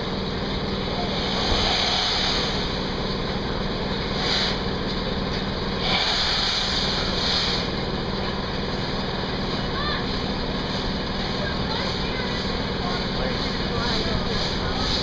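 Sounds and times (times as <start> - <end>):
engine running: 0.0 - 15.0
short hissing bursts: 1.2 - 2.8, 5.8 - 7.7.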